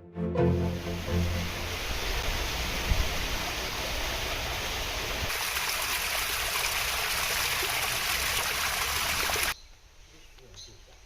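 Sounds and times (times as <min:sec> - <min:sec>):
running water rushing: 0:00.3 - 0:09.6.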